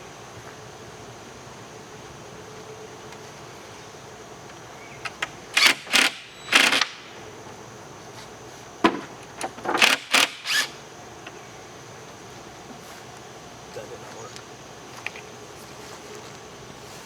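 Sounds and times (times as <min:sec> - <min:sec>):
tools and wood clattering: 0:05.0 - 0:07.0, 0:08.8 - 0:11.3.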